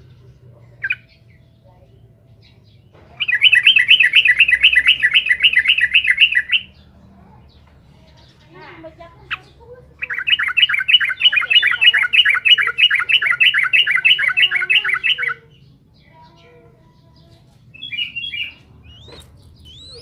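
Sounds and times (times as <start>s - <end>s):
bird singing bubbling notes: 3.2s - 6.8s.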